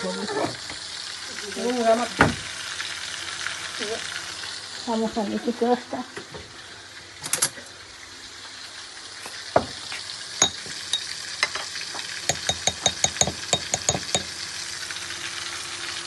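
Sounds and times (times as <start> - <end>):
spices sizzling in hot oil: 0.0 - 16.0
spatula tapping pan: 10.4 - 11.1, 12.2 - 14.4.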